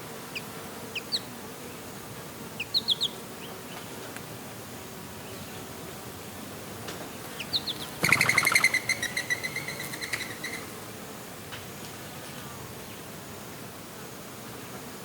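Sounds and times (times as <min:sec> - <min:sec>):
steady background hiss: 0:00.0 - 0:15.0
bird chattering call: 0:02.6 - 0:03.2, 0:07.3 - 0:10.8.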